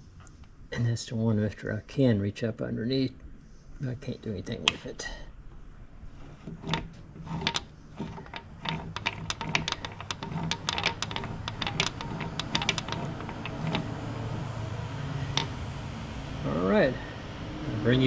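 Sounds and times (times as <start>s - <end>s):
steady low hum: 0.0s - 18.0s
hand tools clicking on metal: 6.4s - 15.6s.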